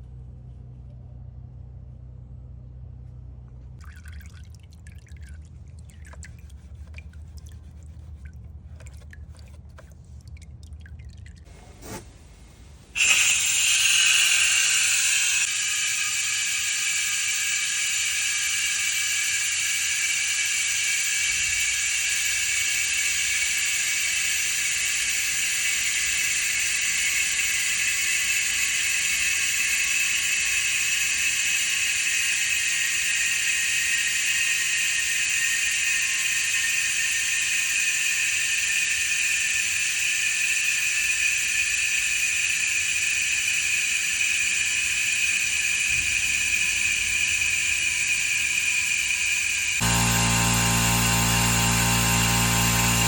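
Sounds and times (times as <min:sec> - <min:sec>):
high whistling tones: 0:13.0 - 0:53.0.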